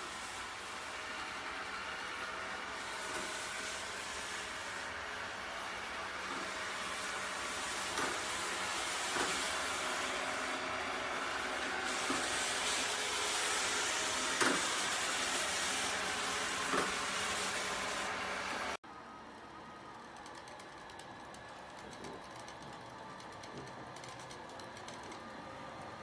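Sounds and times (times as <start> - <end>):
robot vacuum whirring: 0.0 - 18.7.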